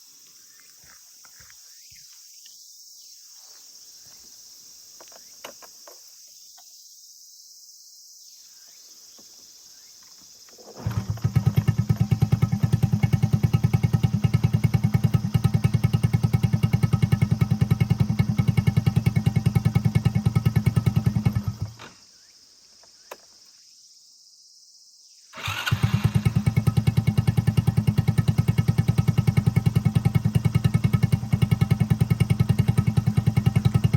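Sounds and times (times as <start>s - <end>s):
motorcycle engine starting: 10.6s - 22.0s, 25.4s - 33.9s
motorcycle engine idling: 10.8s - 21.8s, 25.4s - 33.9s.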